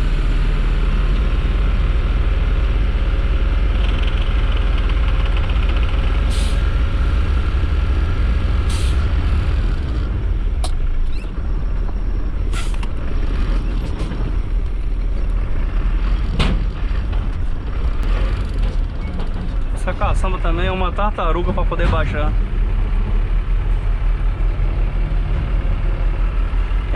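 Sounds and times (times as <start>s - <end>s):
truck diesel engine rumbling: 0.0s - 26.9s
air brake hisses: 8.7s - 9.0s.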